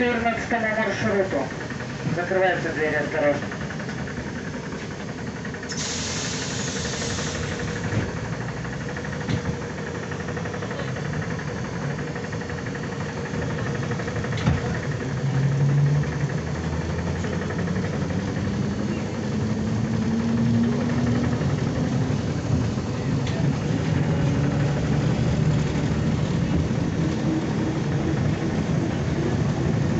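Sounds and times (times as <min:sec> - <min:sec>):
traction motor hum: 0:00.0 - 0:29.9
trolleybus running noise: 0:00.0 - 0:29.9
air hiss blast: 0:05.7 - 0:07.7.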